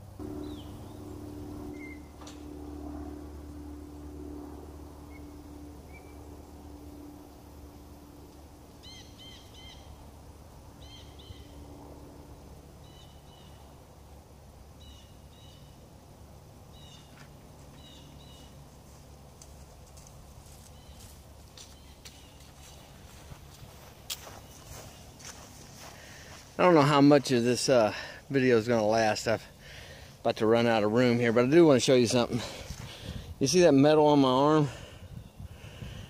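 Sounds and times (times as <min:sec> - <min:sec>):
low steady hum: 0:00.0 - 0:36.0
bird chirping: 0:00.2 - 0:02.4, 0:05.0 - 0:07.4, 0:08.8 - 0:10.0, 0:10.7 - 0:11.7, 0:12.8 - 0:13.8, 0:14.8 - 0:15.8, 0:16.7 - 0:18.6.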